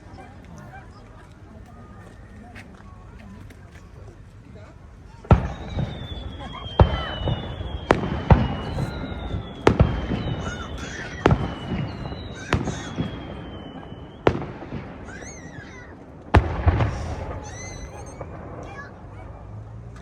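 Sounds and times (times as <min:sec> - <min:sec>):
fireworks bursting with loud bangs: 0:05.2 - 0:20.0
falling whistling tones: 0:05.3 - 0:16.0, 0:16.7 - 0:19.0.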